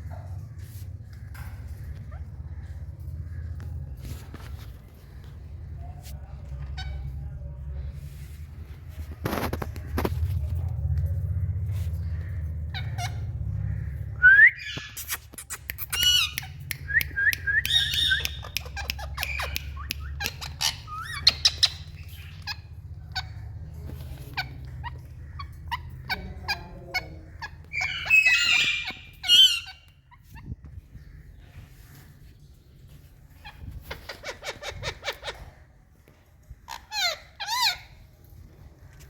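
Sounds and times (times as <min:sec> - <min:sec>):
low steady hum: 0:00.0 - 0:33.9
parrots squawking and chirping: 0:00.1 - 0:10.6, 0:11.6 - 0:39.0.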